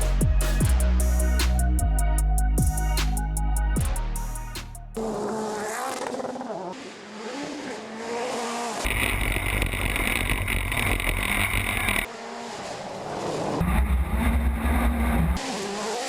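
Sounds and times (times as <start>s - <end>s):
road noise: 4.9s - 16.0s
rally car engine revving: 5.0s - 16.0s.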